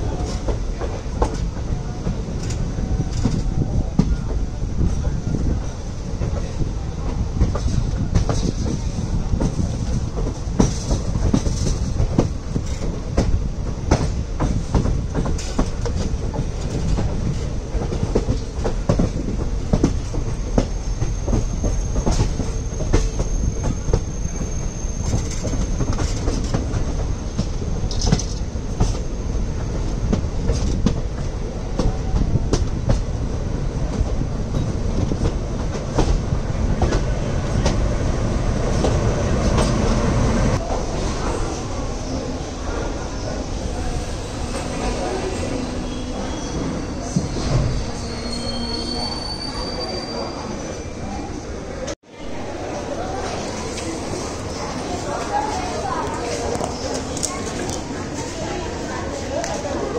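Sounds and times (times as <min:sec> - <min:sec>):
train wheels clacking over rail joints: 0:00.0 - 0:29.1
high wheel squeal: 0:20.4 - 0:26.1, 0:43.6 - 0:51.2.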